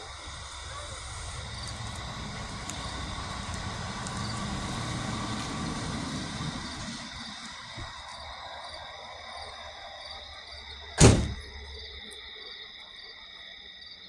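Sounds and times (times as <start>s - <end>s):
firework crackles: 0.0s - 7.7s
fountain firework rushing: 0.0s - 8.2s.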